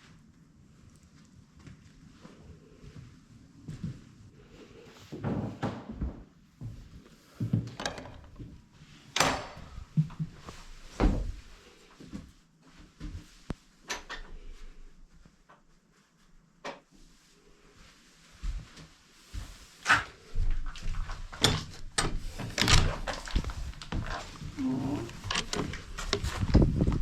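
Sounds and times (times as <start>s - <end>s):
wooden knocks and clunks: 7.6s - 8.5s.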